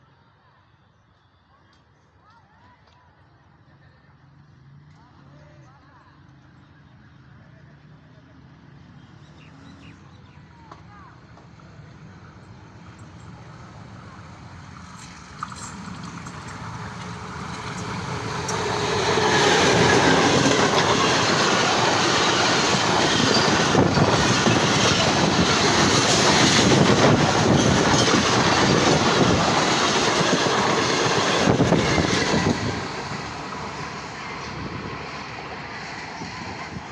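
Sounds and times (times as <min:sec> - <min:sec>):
train passing at speed: 0:10.4 - 0:36.9
train wheel clatter: 0:14.7 - 0:35.2.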